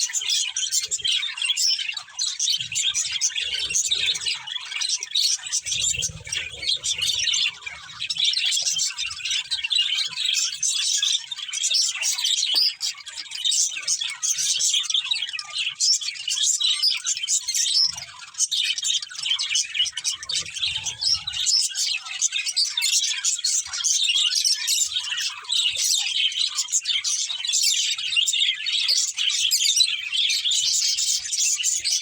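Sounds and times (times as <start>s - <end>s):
budgerigars chirping: 0.0s - 32.0s.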